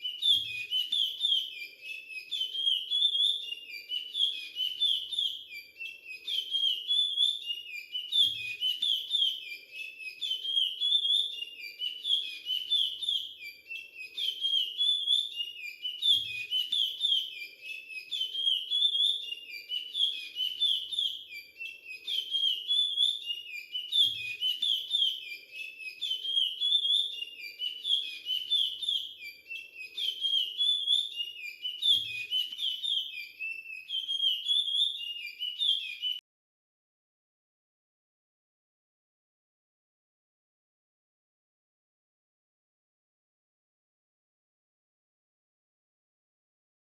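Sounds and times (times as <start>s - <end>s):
finch singing whistled song: 0.0s - 36.2s.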